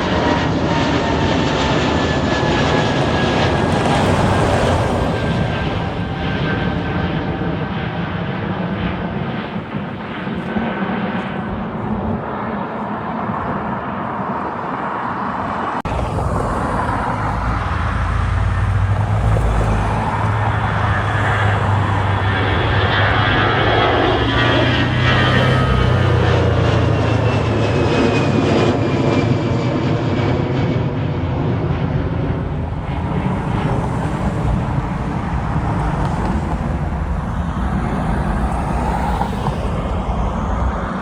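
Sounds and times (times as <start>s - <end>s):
airliner jet engines running: 0.0s - 41.0s
low steady drone: 15.8s - 41.0s.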